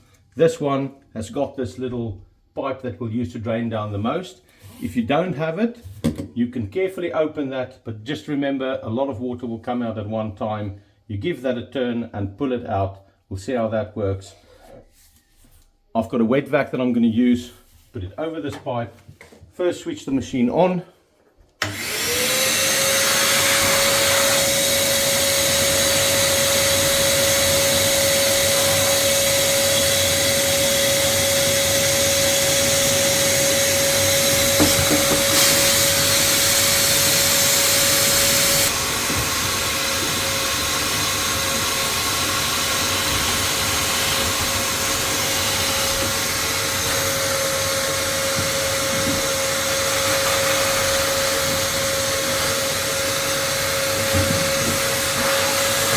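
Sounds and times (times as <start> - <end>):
vacuum sucking water: 21.6 - 55.9
wet vacuum motor whining: 21.6 - 55.9.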